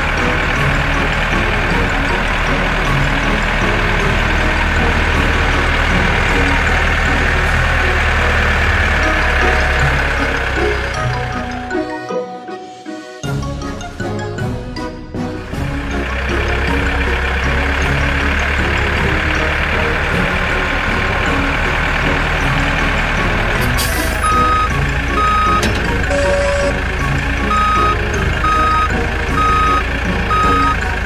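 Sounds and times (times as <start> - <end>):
cartoon tractor engine running: 0.0 - 31.0
reversing alarm beeps: 24.2 - 26.8, 27.4 - 30.8.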